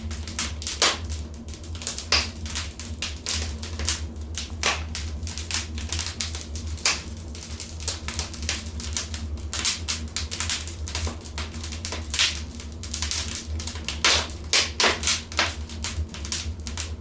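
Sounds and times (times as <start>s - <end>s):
low fire rumble: 0.0s - 17.0s
wood fire crackling: 0.0s - 17.0s.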